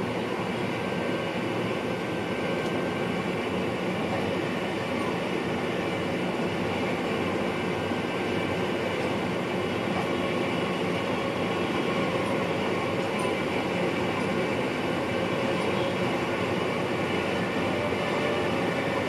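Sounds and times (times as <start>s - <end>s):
electric train running: 0.0s - 19.0s.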